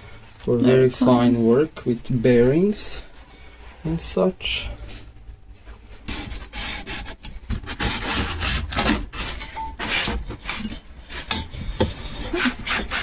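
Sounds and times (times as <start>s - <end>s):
low steady hum: 0.0s - 13.0s
metal tools clinking: 9.3s - 11.6s.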